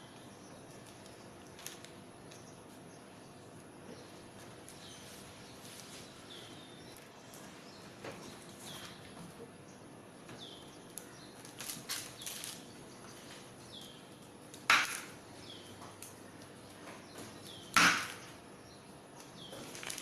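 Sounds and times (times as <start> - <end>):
loud sharp knocks: 17.7 - 18.3.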